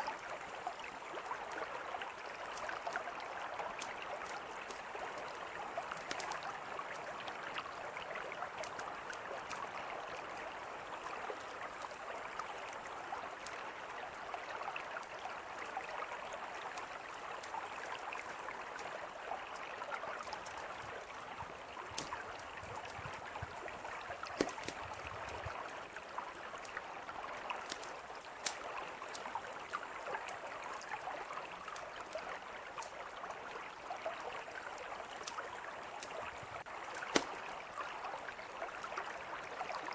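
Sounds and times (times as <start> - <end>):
river flowing: 0.0 - 39.9
campfire crackling and popping: 20.3 - 20.8, 21.8 - 25.7, 27.4 - 30.4, 35.1 - 37.8.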